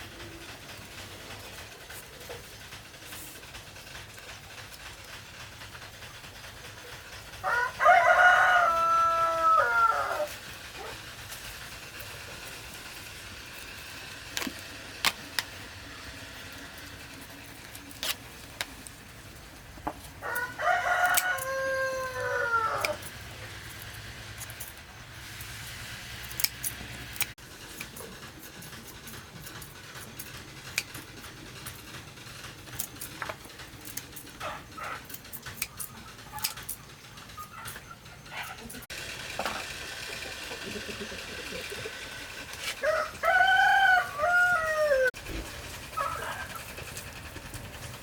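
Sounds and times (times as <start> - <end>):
rooster crowing: 7.4 - 10.9, 20.2 - 23.1, 42.6 - 45.2.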